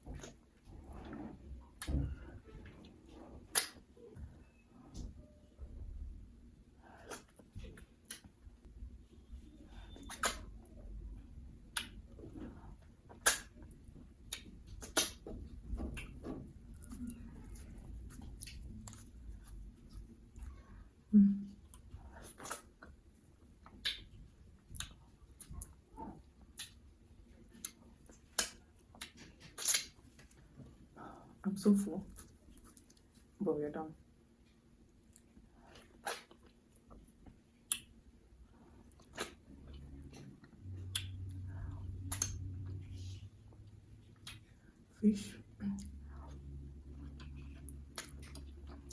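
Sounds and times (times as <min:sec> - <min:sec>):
wet eating clicks and smacks: 0:03.4 - 0:03.9, 0:07.0 - 0:08.4, 0:10.0 - 0:10.8, 0:11.6 - 0:12.5, 0:13.1 - 0:20.6, 0:21.6 - 0:30.4, 0:34.8 - 0:38.1, 0:38.8 - 0:44.7, 0:45.8 - 0:48.9
wet lip smacks: 0:03.5 - 0:03.8, 0:10.0 - 0:10.5, 0:14.3 - 0:15.2, 0:36.0 - 0:36.5, 0:38.9 - 0:39.4, 0:42.0 - 0:42.8
chewing clicks: 0:38.9 - 0:42.8.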